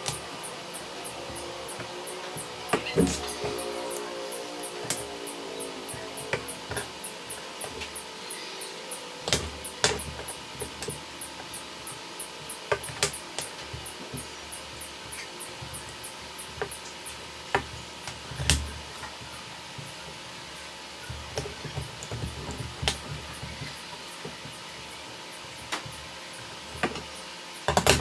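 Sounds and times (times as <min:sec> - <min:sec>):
fast high ticking: 0:00.0 - 0:18.2.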